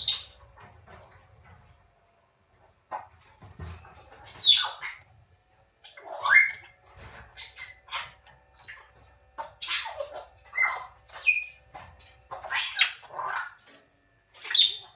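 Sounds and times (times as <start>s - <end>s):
cockatoo chicks calling: 0.0s - 0.7s, 4.0s - 5.1s, 5.8s - 13.8s, 14.4s - 14.9s.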